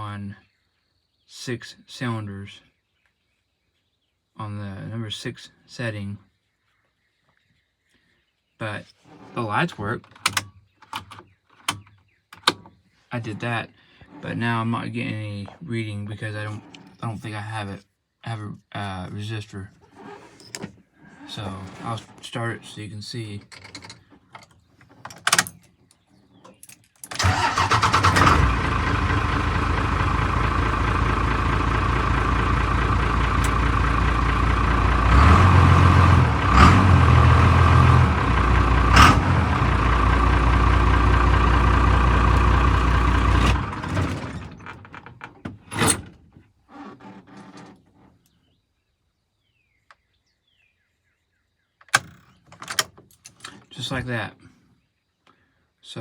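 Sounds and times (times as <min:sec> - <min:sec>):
truck engine cranking and idling: 0:27.1 - 0:46.2.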